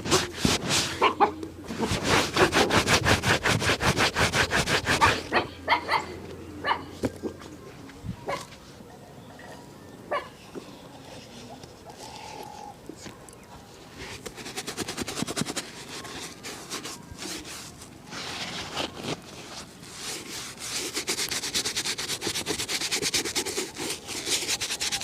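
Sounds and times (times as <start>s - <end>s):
shoe being buffed: 0.0s - 5.3s, 14.0s - 17.7s, 19.8s - 25.0s.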